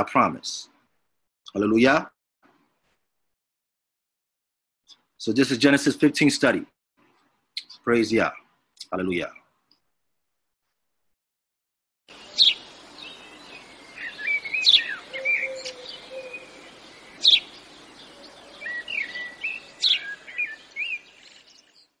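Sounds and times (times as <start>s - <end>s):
loud sharp bird calls: 12.1s - 22.0s
songbirds warbling chirps: 12.1s - 22.0s.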